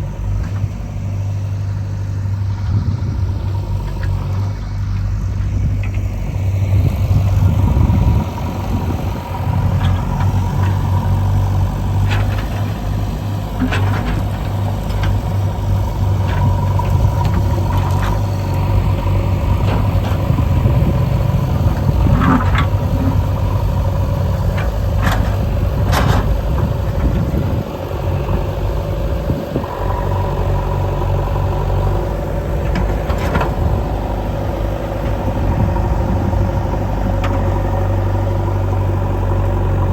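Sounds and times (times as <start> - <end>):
engine running: 0.0 - 39.9
sharp clanks and knocks: 24.5 - 27.2.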